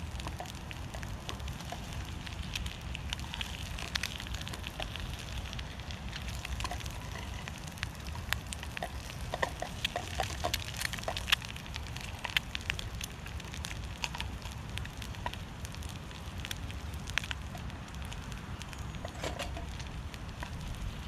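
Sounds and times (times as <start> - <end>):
low fire rumble: 0.0 - 21.0
wood fire crackling in stove: 0.0 - 21.0.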